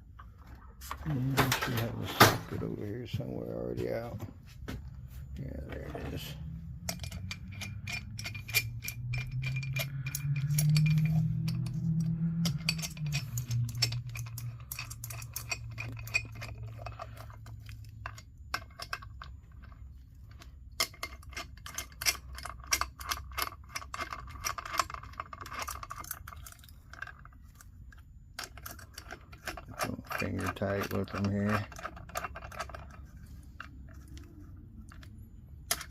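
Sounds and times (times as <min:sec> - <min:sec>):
low hum: 0:00.0 - 0:21.0
metal tools and bolts clinking: 0:05.4 - 0:35.9
ratchet-like clicking: 0:06.8 - 0:17.4.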